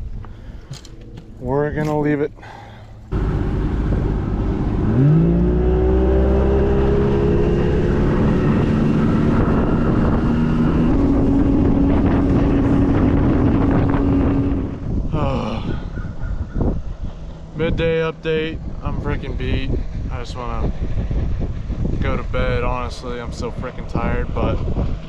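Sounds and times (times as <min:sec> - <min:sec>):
outboard motor revving: 0:02.4 - 0:15.4.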